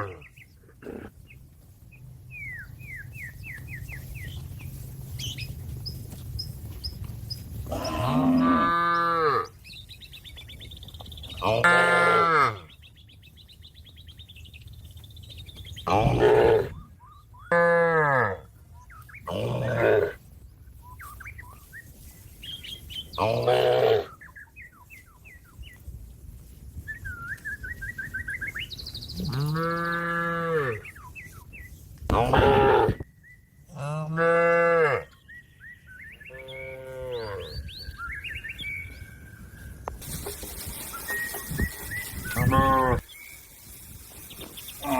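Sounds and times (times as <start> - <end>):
birds chirping: 0.0 - 17.8, 18.6 - 31.8, 34.8 - 44.9
cow mooing: 7.7 - 9.5, 11.4 - 12.7, 33.7 - 35.1, 36.3 - 37.5, 42.3 - 43.0.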